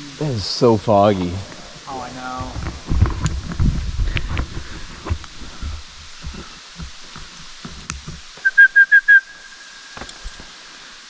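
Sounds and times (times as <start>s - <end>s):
low thumps and knocks: 2.2s - 8.4s
whistle short high blasts: 8.4s - 9.7s.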